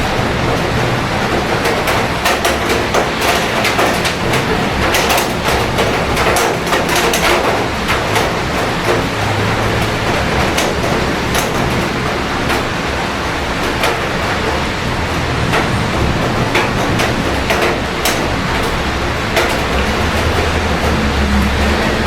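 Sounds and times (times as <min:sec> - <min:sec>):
city traffic rumble: 0:00.0 - 0:22.0
heavy rain: 0:00.0 - 0:22.0
raindrops ticking on hard surfaces: 0:00.0 - 0:22.0.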